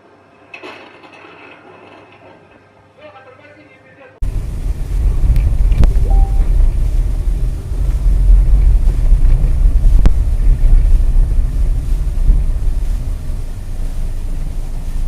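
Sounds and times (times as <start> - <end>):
low rumble of car driving: 4.2 - 15.0.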